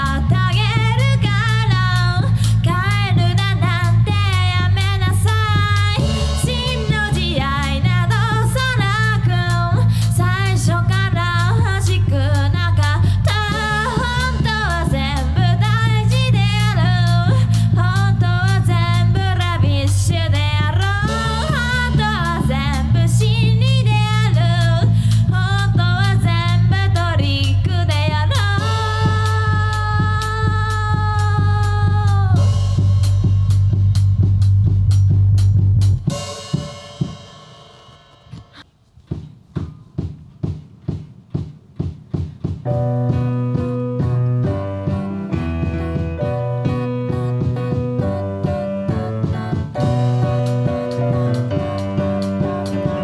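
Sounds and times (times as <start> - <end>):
electric bass: 0.0 - 36.3, 42.8 - 53.0
drum kit: 0.0 - 53.0
rock band playing: 42.7 - 53.0
person singing: 43.5 - 53.0.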